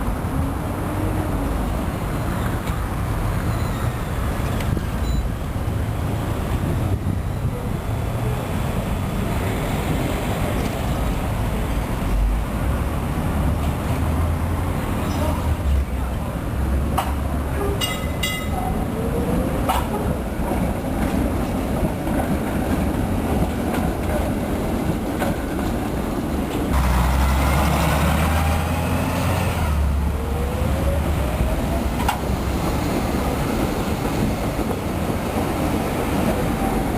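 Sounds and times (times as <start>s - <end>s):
tram rumbling on rails: 0.0s - 36.9s.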